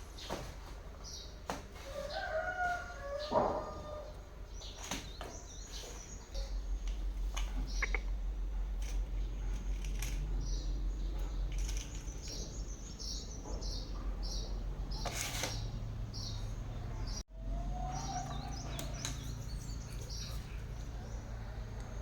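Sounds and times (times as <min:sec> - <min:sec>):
birds chirping: 0:00.0 - 0:22.0
low steady hum: 0:05.4 - 0:13.0.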